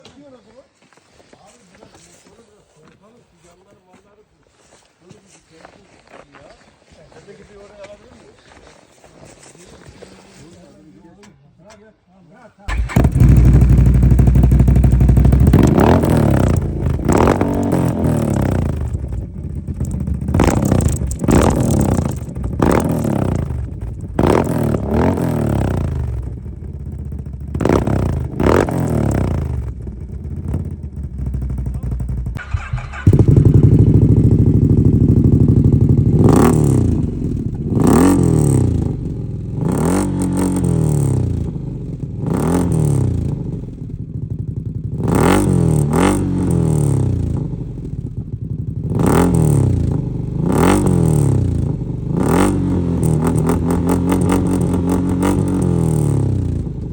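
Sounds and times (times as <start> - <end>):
loud exhaust idling: 12.7 - 39.6, 52.8 - 56.9
quad engine revving: 12.7 - 44.1, 44.8 - 56.9
exhaust cracks: 12.7 - 56.9.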